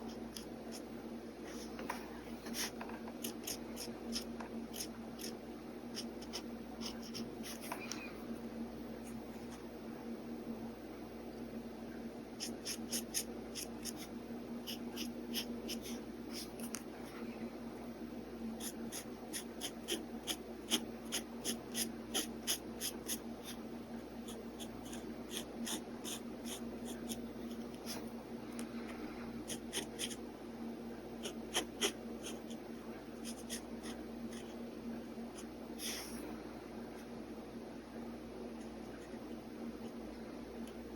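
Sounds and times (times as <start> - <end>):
pen scratching on paper: 2.4 - 7.7, 12.4 - 16.8, 18.6 - 23.6, 24.2 - 28.0, 29.4 - 30.2, 31.2 - 32.6, 33.2 - 34.6.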